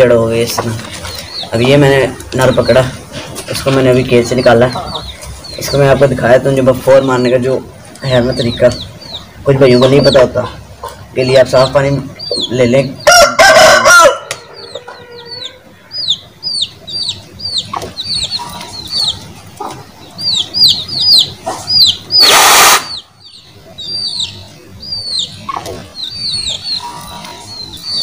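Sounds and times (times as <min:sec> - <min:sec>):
birds peeping: 0:00.0 - 0:28.0
loud burst: 0:22.1 - 0:23.0
short loud hiss: 0:22.2 - 0:23.0.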